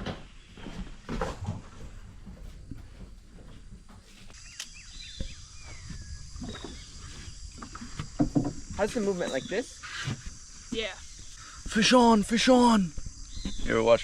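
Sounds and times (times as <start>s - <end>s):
high-pitched insect drone: 4.4s - 14.0s
soft knocks: 7.6s - 9.4s.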